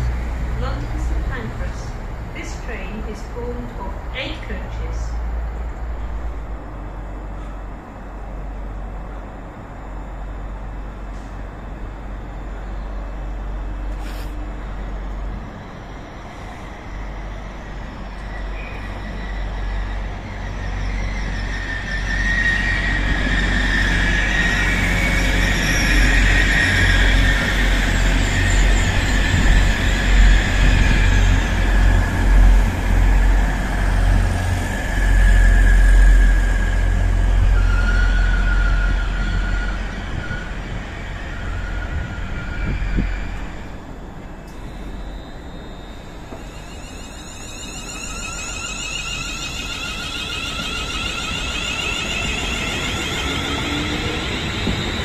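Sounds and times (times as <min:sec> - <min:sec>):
train rumbling: 0:00.0 - 0:55.0
high wheel squeal: 0:15.4 - 0:55.0.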